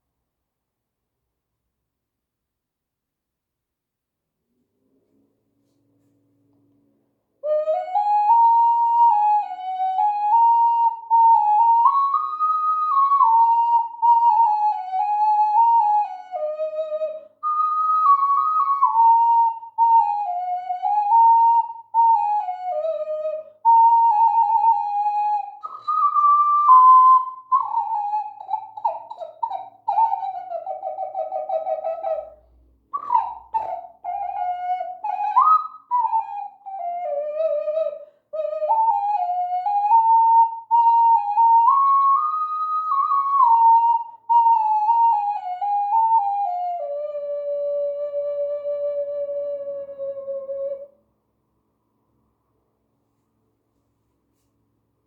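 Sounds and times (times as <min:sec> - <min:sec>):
ocarina melody: 0:07.4 - 0:51.0.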